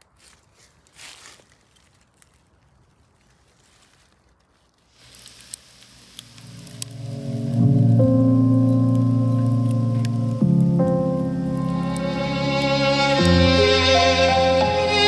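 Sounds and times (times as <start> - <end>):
faint rustling: 0.0 - 15.0
sharp clicks: 5.0 - 13.5
music track on speakers: 6.8 - 15.0.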